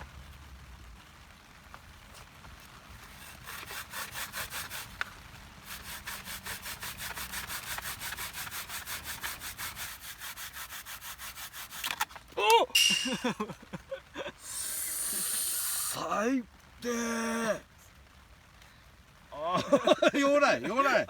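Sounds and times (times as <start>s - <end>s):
rhythmic scraping of food by hand: 2.2s - 12.3s.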